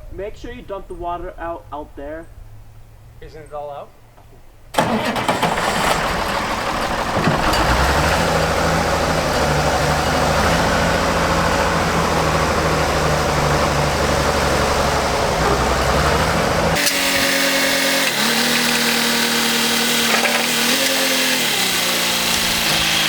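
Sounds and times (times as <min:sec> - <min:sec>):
tractor engine running: 0:04.7 - 0:23.0.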